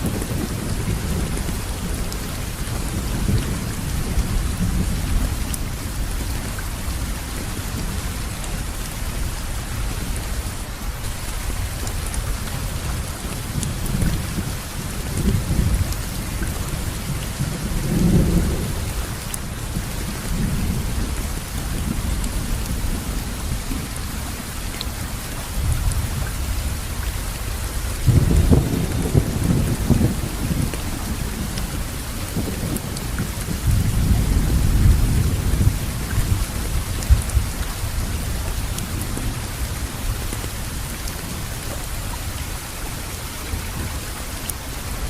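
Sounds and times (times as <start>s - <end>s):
steady rain hissing: 0.0s - 45.0s
low thunder rumbling: 11.0s - 24.4s, 27.6s - 41.6s.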